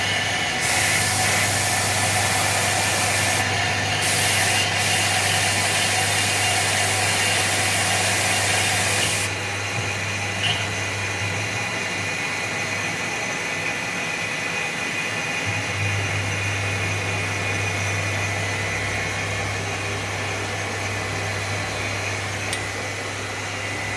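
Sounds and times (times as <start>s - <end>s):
milling machine hum: 0.0s - 23.9s
loud hiss: 0.5s - 6.9s.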